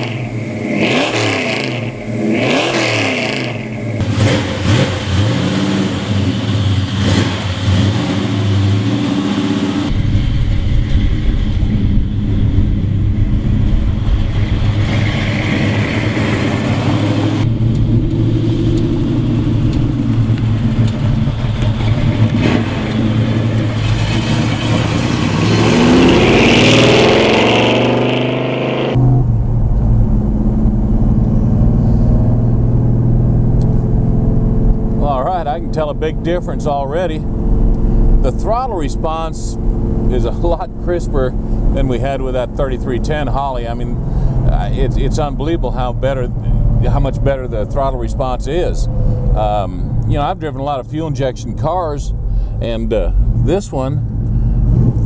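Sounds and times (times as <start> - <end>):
car engine running: 0.0 - 55.0.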